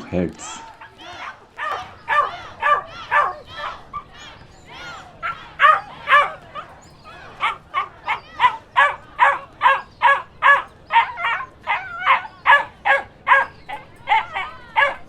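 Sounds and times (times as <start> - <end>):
dog barking: 0.7 - 4.0, 5.2 - 6.7, 7.4 - 15.0.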